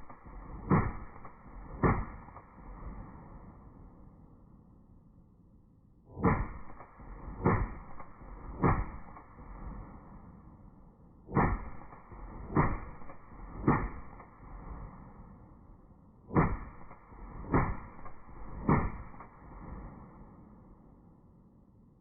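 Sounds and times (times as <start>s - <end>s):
gunshots: 0.0s - 3.0s, 6.1s - 9.7s, 11.3s - 15.1s, 16.3s - 20.1s.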